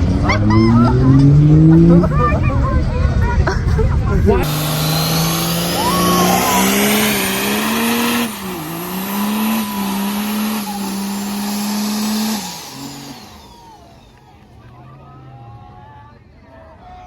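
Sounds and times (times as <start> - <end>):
truck engine revving high: 0.0 - 3.2, 4.2 - 15.3
tyres spinning hiss: 4.4 - 14.6.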